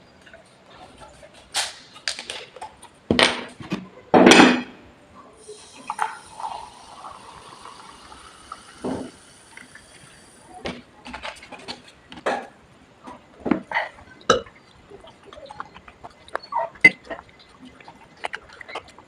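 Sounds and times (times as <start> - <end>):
soft drink fizzing: 5.4 - 12.0, 13.0 - 19.0.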